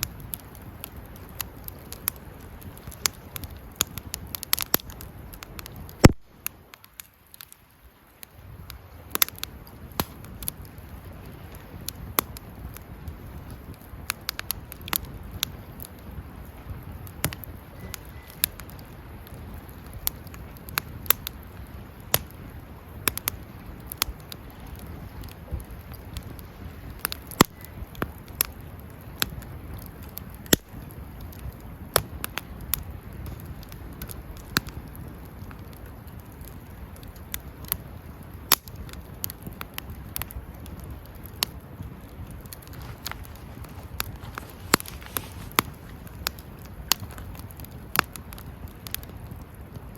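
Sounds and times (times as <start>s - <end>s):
low rumble of burning: 0.0s - 49.9s
wood fire crackling: 0.0s - 49.9s
sharp pops: 42.6s - 47.0s.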